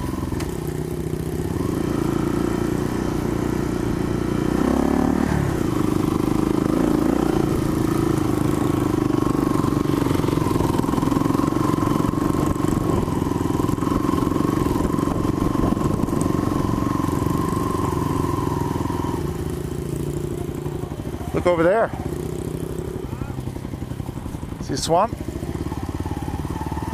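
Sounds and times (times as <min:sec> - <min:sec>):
small engine running steadily: 0:00.0 - 0:26.9.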